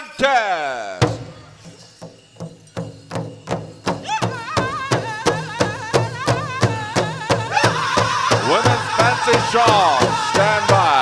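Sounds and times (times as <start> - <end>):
high wavering singing voice: 4.0 - 11.0
big drum beating: 6.7 - 11.0.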